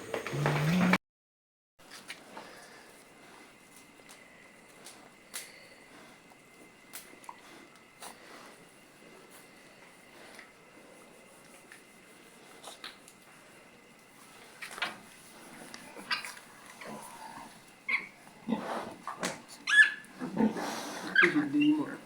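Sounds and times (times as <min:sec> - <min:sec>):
pigs squealing and grunting: 0:16.0 - 0:19.0, 0:19.6 - 0:22.0.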